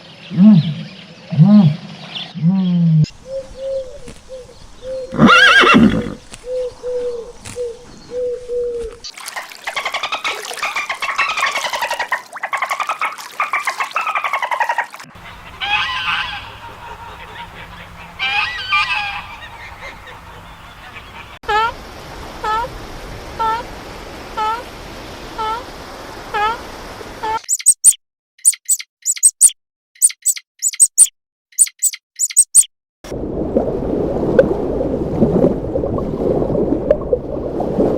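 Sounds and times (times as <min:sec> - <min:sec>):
squawking calls: 0:09.8 - 0:21.4, 0:27.2 - 0:32.7
short repeated animal calls: 0:27.2 - 0:32.7
fast pulsed trilling call: 0:27.4 - 0:32.7.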